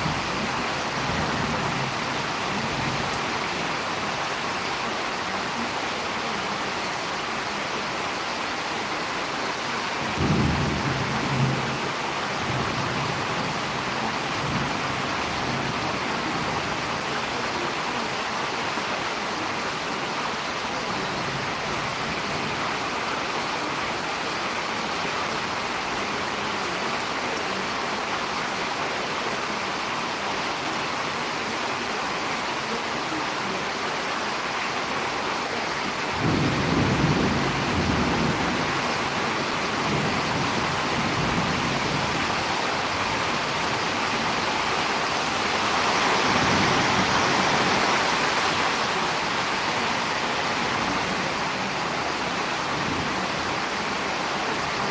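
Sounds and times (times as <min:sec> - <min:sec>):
heavy rain falling: 0:00.0 - 0:54.9
low rumble of thunder: 0:10.0 - 0:16.8, 0:36.1 - 0:43.8.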